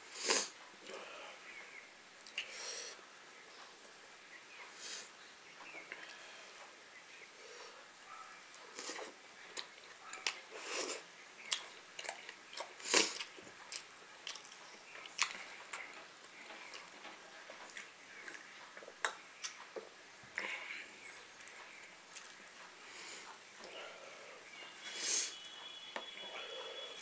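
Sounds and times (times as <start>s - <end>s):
person chewing food: 8.6s - 25.6s
mouth clicks and smacks: 17.7s - 20.6s.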